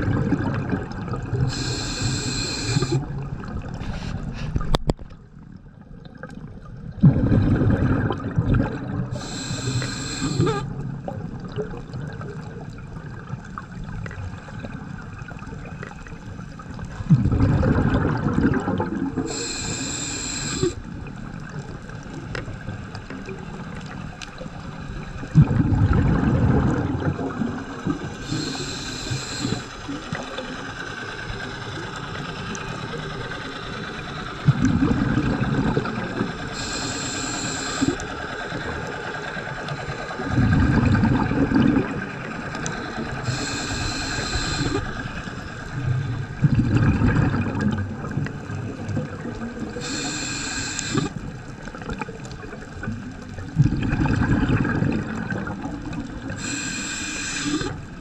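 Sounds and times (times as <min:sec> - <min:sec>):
gurgling exhaled bubbles: 0:00.0 - 0:04.9, 0:05.8 - 0:24.6, 0:25.2 - 0:30.6, 0:34.4 - 0:38.9, 0:39.9 - 0:58.0
diver inhaling through regulator: 0:01.4 - 0:03.2, 0:08.9 - 0:10.8, 0:19.2 - 0:20.8, 0:28.0 - 0:30.3, 0:32.8 - 0:38.2, 0:42.6 - 0:45.4, 0:49.8 - 0:51.3, 0:56.3 - 0:58.0.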